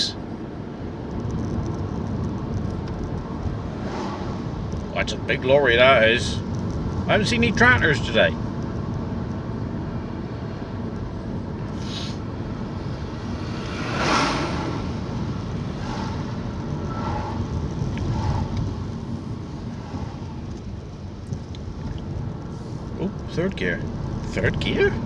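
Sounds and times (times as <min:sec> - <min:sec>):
road and engine noise inside car: 0:00.0 - 0:25.0
vehicle passing: 0:02.6 - 0:08.2, 0:09.8 - 0:25.0.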